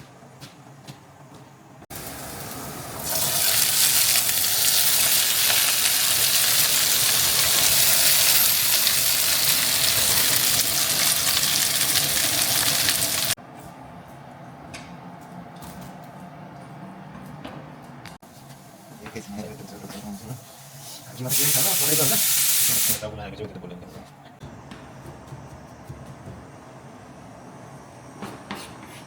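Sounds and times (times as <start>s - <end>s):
food sizzling in frying pan: 1.9s - 13.4s, 20.4s - 23.0s.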